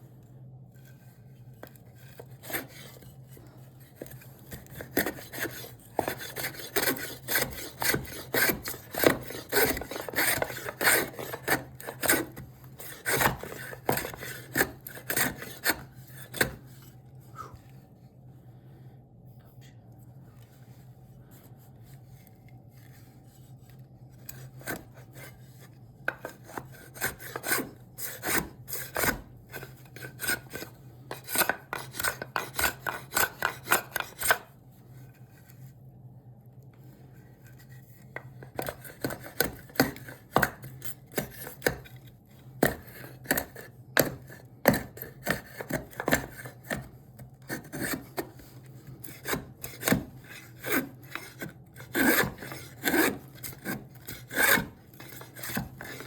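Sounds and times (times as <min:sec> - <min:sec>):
hand tool scraping wood: 0:01.6 - 0:17.5, 0:24.1 - 0:34.5, 0:37.6 - 0:42.0, 0:42.6 - 0:56.0.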